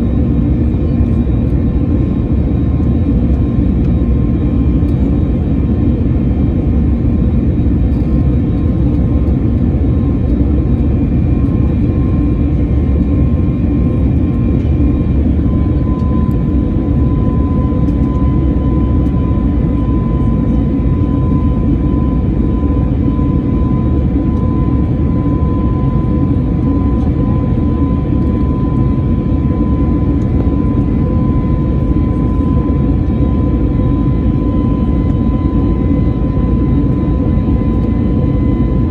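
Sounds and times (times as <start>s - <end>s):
jet engine cabin roar: 0.0s - 38.9s
thin engine whine: 7.8s - 38.9s.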